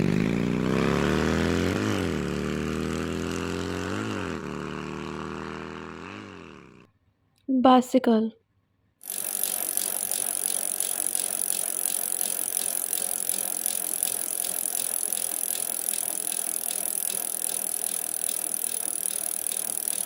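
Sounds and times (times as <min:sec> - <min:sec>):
fast even clicks: 0:09.0 - 0:20.0.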